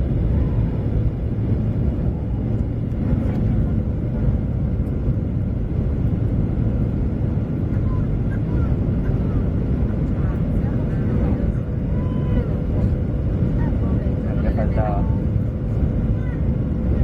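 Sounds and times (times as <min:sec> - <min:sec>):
jet engine rumble in cabin: 0:00.0 - 0:17.0.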